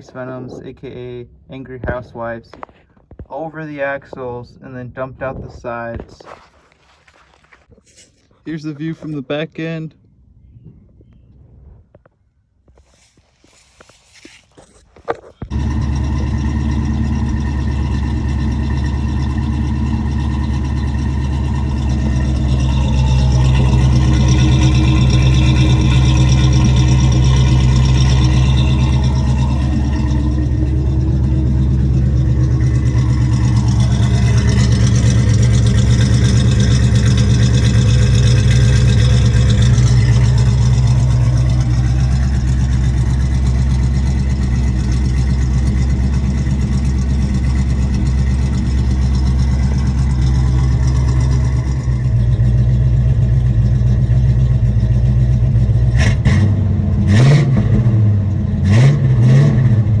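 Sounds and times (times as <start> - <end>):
car engine idling and revving: 15.1 - 60.0.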